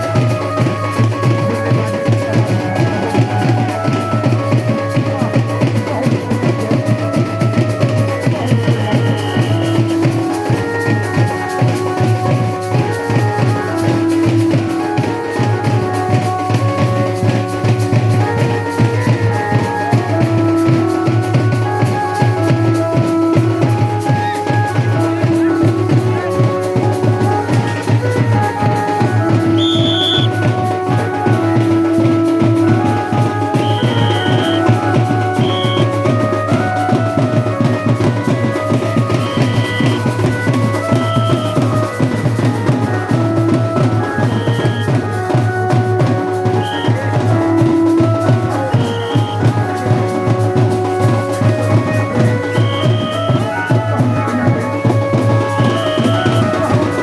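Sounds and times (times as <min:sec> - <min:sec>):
fast dense drumming: 0:00.0 - 0:57.0
melody of held notes: 0:00.0 - 0:57.0.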